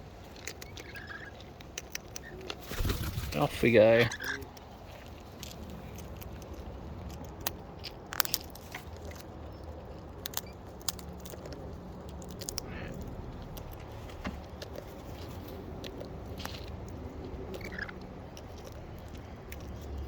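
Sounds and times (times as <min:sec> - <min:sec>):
cockatoo beaks crunching food: 0:00.0 - 0:20.0
sharp cracks and clicks: 0:05.4 - 0:09.3.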